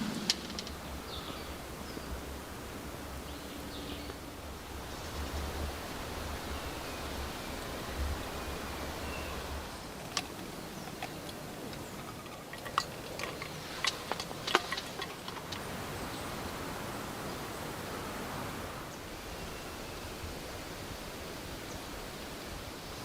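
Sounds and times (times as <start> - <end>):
sharp cracks and ticks: 0.0 - 1.0, 9.9 - 15.7
steady rain falling: 0.0 - 23.0.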